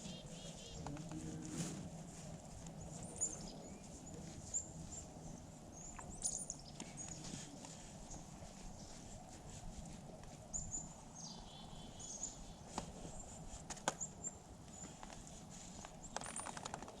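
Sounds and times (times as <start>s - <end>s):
small birds chirping: 0.0s - 1.5s, 2.2s - 17.0s
faint low rumble: 0.0s - 13.3s.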